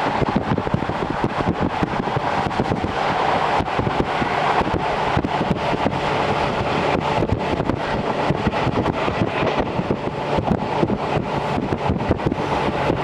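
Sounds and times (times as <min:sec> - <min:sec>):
train wheels rushing on rail: 0:00.0 - 0:13.0.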